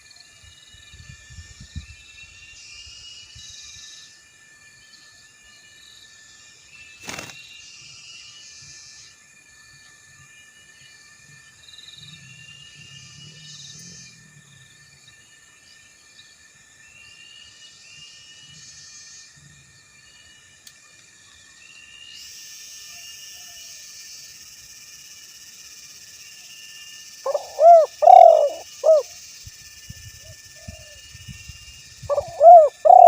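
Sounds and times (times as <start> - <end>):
insects droning: 0.0 - 33.0
insect buzzing: 6.8 - 7.8, 22.1 - 33.0
bird chirping: 27.3 - 29.1, 31.9 - 33.0.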